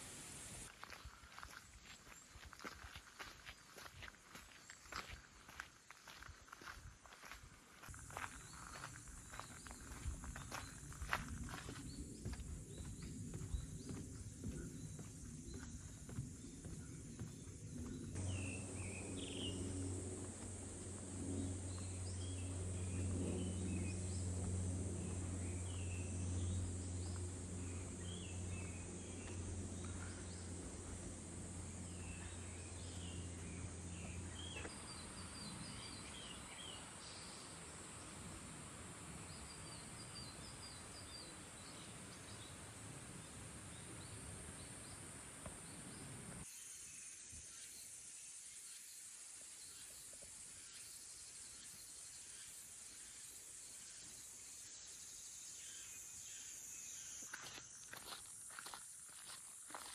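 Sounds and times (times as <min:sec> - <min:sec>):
high-pitched insect drone: 0:07.9 - 0:38.4
low steady hum: 0:08.1 - 0:46.5.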